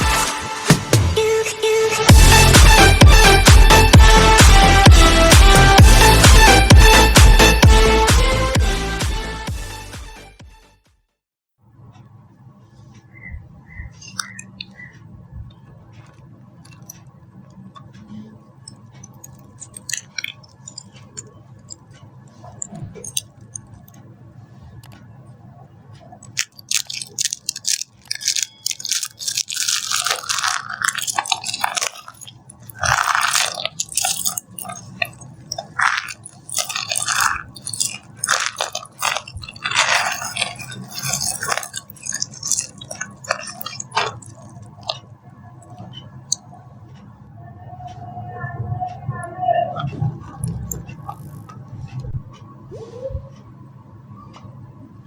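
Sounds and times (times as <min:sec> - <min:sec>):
dry soap crunching: 0:19.2 - 0:20.9, 0:26.2 - 0:45.0.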